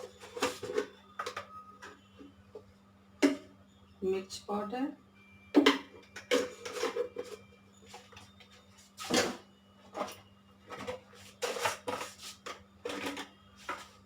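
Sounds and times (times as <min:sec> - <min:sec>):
spoon clinking on containers: 0:05.6 - 0:08.3.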